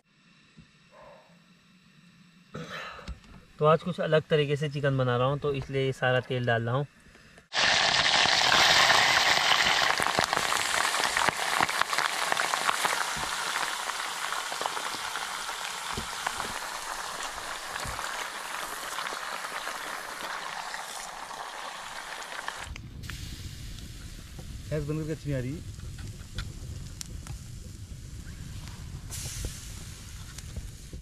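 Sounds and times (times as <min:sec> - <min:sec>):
food frying in hot oil: 0:07.5 - 0:31.0.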